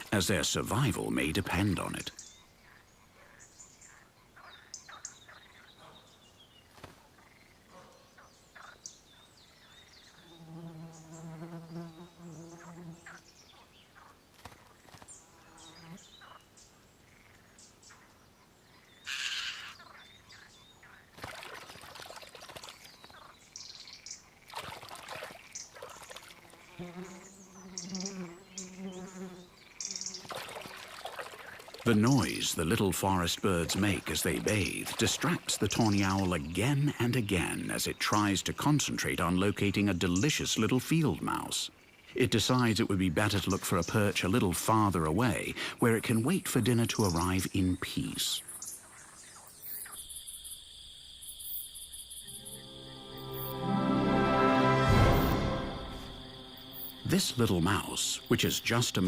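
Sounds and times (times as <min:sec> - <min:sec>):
birds chirping: 0:00.0 - 0:59.0
wings flapping: 0:06.7 - 0:07.1, 0:14.3 - 0:15.1, 0:21.1 - 0:23.3
insect buzzing: 0:10.2 - 0:13.2, 0:24.0 - 0:31.7, 0:49.5 - 0:53.8, 0:54.7 - 0:58.6
water splashing: 0:21.1 - 0:23.3, 0:24.4 - 0:26.6, 0:30.2 - 0:36.5.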